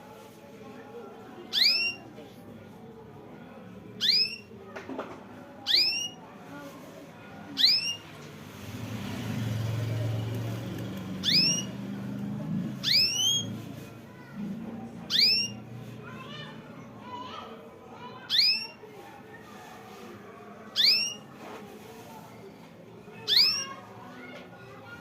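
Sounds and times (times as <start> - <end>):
songbird whistled call: 1.5 - 2.0, 4.0 - 4.5, 5.7 - 6.2, 7.6 - 8.0, 11.2 - 11.7, 12.8 - 13.5, 15.1 - 15.6, 18.3 - 18.7, 20.8 - 21.2, 23.3 - 23.7.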